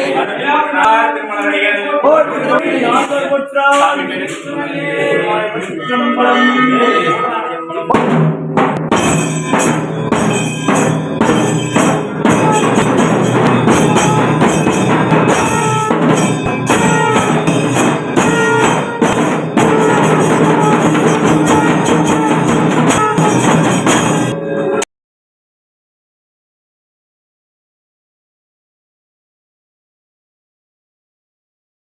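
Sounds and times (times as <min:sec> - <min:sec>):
drums and cymbals playing: 0:02.9 - 0:04.6, 0:07.9 - 0:24.4
held pitched notes: 0:09.0 - 0:24.8.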